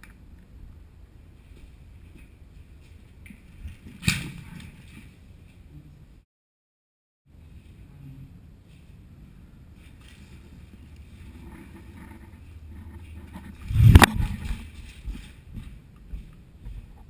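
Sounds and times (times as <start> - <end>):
wind rumble on microphone: 10.3 - 17.0.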